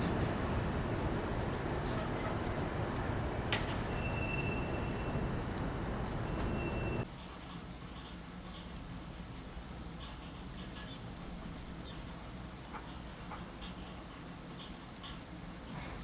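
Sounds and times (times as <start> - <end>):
vehicle rumbling: 0.0 - 7.1.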